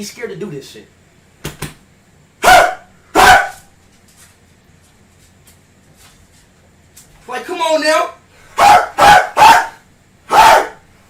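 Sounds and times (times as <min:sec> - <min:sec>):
dog barking loudly: 0:02.4 - 0:03.7, 0:08.6 - 0:10.8.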